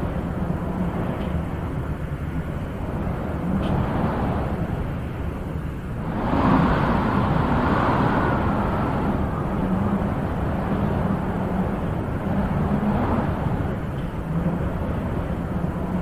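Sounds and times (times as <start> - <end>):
wind blowing: 0.0 - 16.0.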